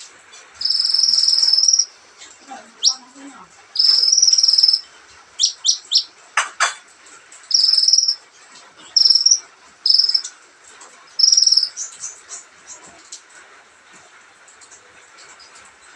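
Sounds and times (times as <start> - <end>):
sunbird buzzy trilling song: 0.6 - 1.9, 2.8 - 3.2, 3.8 - 6.1, 7.5 - 8.2, 8.8 - 10.3, 11.1 - 12.4
thin bird chirps: 0.6 - 1.9, 2.8 - 3.0, 3.8 - 6.1, 7.5 - 8.2, 8.9 - 10.3, 11.2 - 12.2.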